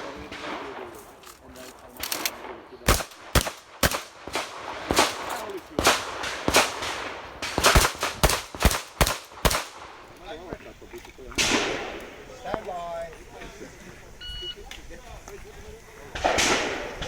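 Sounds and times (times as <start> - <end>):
shotgun shots: 0.0 - 10.0, 11.4 - 12.3, 16.2 - 17.0.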